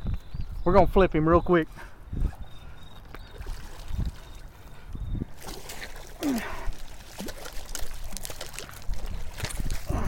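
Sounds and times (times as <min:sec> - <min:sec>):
water splashing and sloshing: 0:01.8 - 0:10.0.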